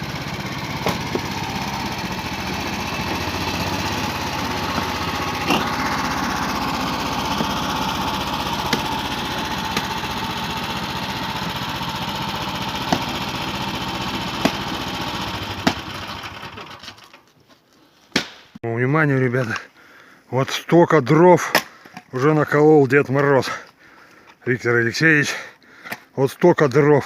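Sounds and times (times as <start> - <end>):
engine idling: 0.0 - 17.1
sharp knocks: 8.7 - 8.9.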